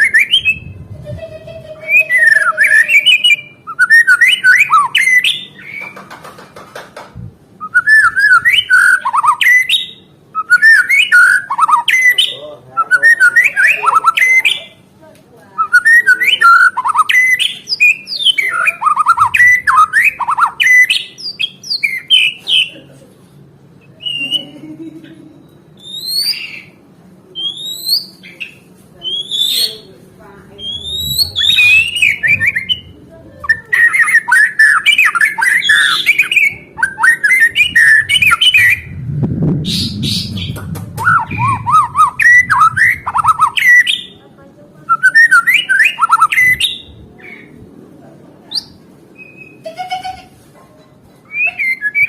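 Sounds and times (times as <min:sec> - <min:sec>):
songbird whistling: 0:00.0 - 0:00.8, 0:01.9 - 0:05.9, 0:07.6 - 0:14.7, 0:15.6 - 0:22.7, 0:24.0 - 0:24.5, 0:25.3 - 0:26.8, 0:27.4 - 0:29.9, 0:30.6 - 0:39.0, 0:39.7 - 0:44.2, 0:44.9 - 0:47.5, 0:48.5 - 0:49.6, 0:51.3 - 0:52.0.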